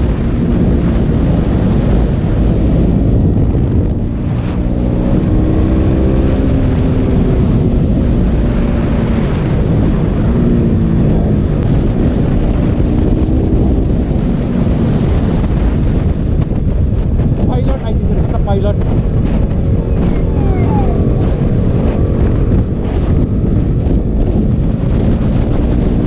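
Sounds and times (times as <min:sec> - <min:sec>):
motorcycle engine revving: 0:00.0 - 0:26.0
wind noise on microphone: 0:00.0 - 0:26.0.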